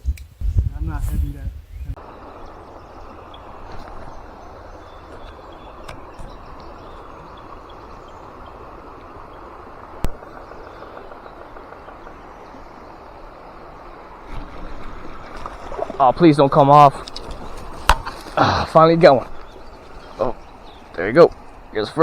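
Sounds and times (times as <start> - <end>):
faint bird chirps: 1.5 - 9.5.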